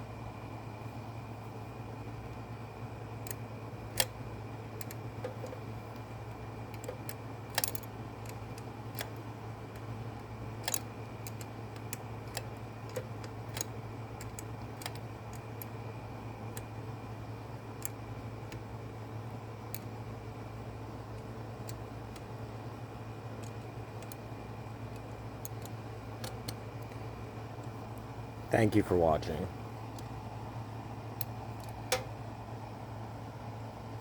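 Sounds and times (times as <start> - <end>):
steady low hum: 0.0 - 34.0
metal parts clicking and tapping: 4.8 - 6.1, 6.7 - 9.9, 10.6 - 15.8, 23.4 - 24.2, 24.9 - 27.0, 31.2 - 32.1.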